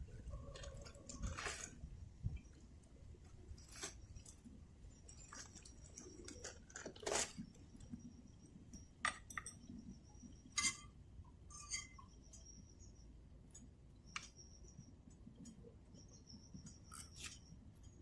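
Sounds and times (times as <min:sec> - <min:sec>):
faint insect chirping: 0:00.0 - 0:18.0
tableware clinking: 0:10.6 - 0:10.9.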